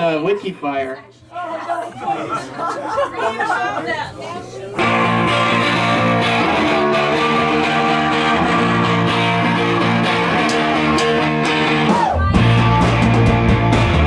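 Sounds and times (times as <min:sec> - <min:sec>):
electric guitar chords: 0:04.8 - 0:14.0
heavy low bass: 0:04.8 - 0:14.0.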